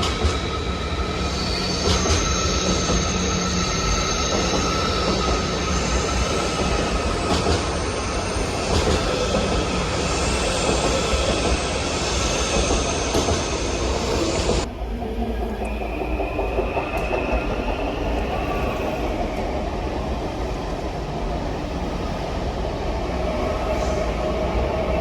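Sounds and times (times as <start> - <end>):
train wheels rumbling on rails: 0.0 - 25.0
high wheel squeal: 0.3 - 14.6.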